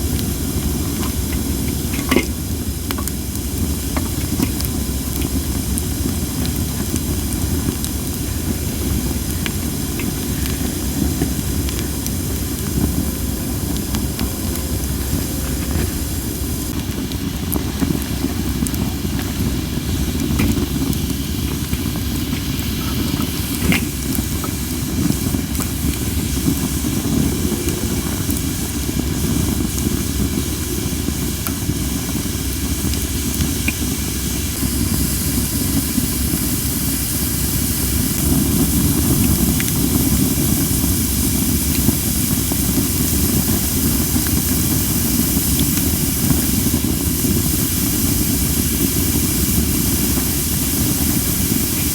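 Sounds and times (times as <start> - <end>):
campfire crackles and pops: 0.0 - 51.9
steam hissing from logs: 0.0 - 51.9
wind on microphone: 4.1 - 22.0, 22.8 - 36.5.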